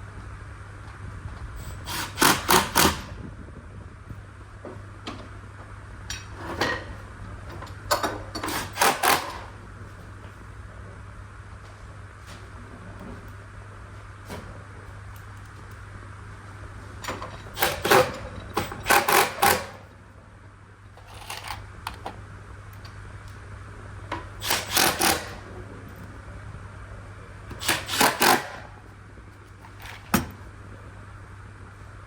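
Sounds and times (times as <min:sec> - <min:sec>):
steady low hum: 0:00.0 - 0:32.0
rapid sharp mechanical clicking: 0:01.8 - 0:03.1, 0:08.5 - 0:09.5, 0:17.5 - 0:19.8, 0:24.4 - 0:25.4, 0:27.6 - 0:28.8.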